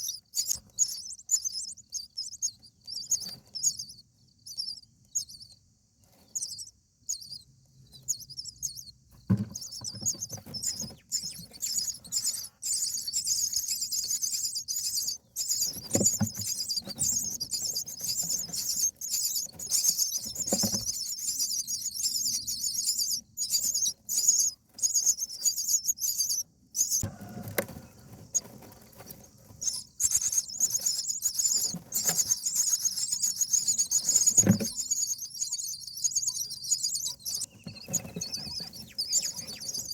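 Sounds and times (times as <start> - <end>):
nestlings squealing: 0.0 - 5.6, 6.3 - 39.9
knocks and rustles in nest: 9.1 - 22.5, 26.9 - 35.2, 37.2 - 39.9.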